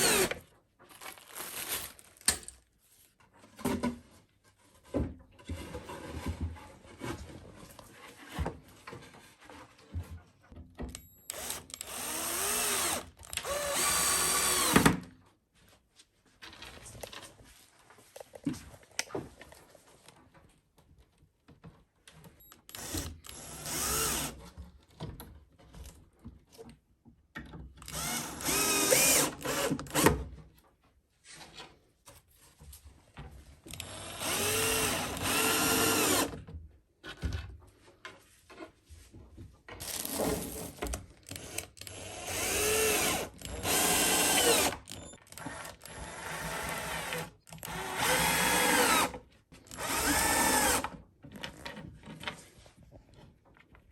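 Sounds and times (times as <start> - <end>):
electric power drill whine: 0.0 - 0.4, 11.3 - 15.0, 22.7 - 24.4, 27.9 - 30.1, 33.8 - 36.3, 41.3 - 50.9.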